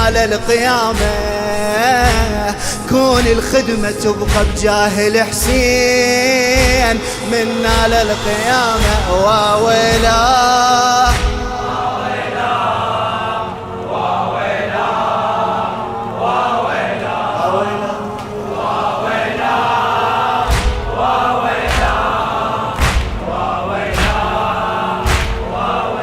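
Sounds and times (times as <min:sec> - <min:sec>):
men chanting in chorus: 0:00.0 - 0:26.0
deep even drum beat: 0:02.0 - 0:02.6, 0:04.3 - 0:05.9, 0:06.6 - 0:11.8, 0:20.5 - 0:22.2, 0:22.8 - 0:25.7.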